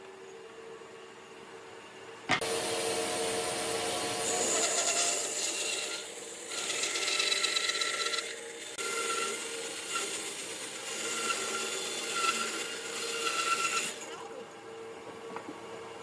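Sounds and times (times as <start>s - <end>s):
tool rasping wood: 4.0s - 14.1s.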